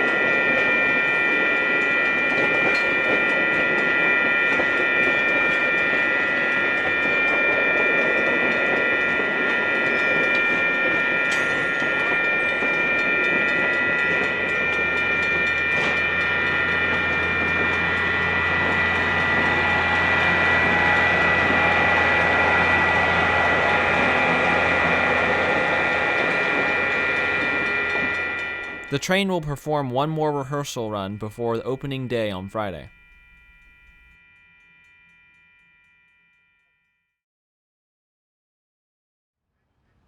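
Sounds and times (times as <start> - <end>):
high steady tones: 24.0 - 34.2.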